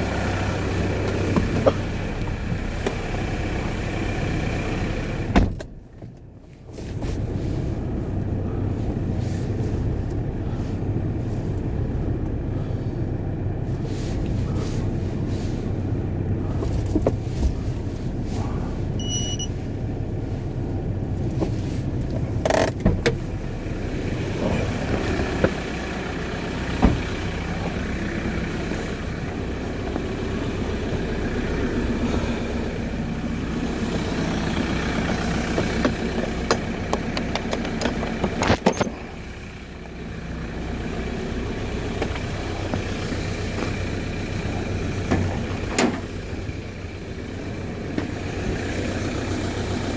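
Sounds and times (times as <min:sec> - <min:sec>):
car engine humming: 0:00.0 - 0:49.9
short electronic beep: 0:19.0 - 0:19.5
sharp knocks and clatters: 0:34.9 - 0:39.0.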